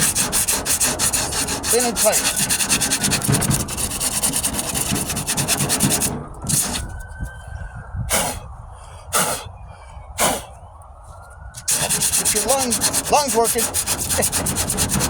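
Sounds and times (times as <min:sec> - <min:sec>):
sandpaper rubbing on filler: 0:00.0 - 0:06.9, 0:11.6 - 0:15.0.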